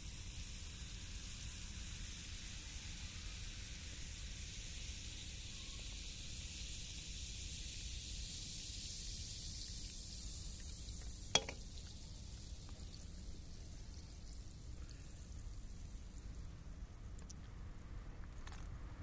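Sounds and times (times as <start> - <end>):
wood fire hissing: 0.0 - 16.9
fire pop: 11.3 - 11.6.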